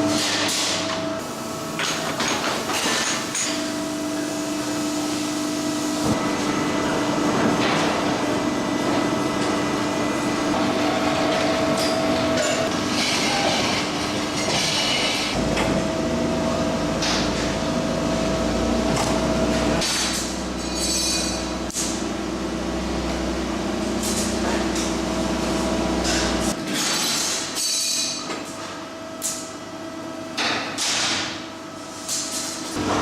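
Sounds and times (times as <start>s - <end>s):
machine hum: 0.8s - 26.6s
low machine rumble: 15.4s - 26.6s.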